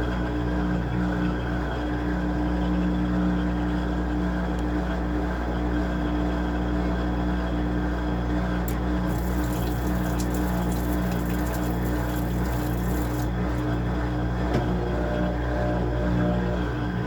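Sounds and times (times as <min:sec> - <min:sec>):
washing machine motor hum: 0:08.2 - 0:17.0
water rushing: 0:09.1 - 0:13.8.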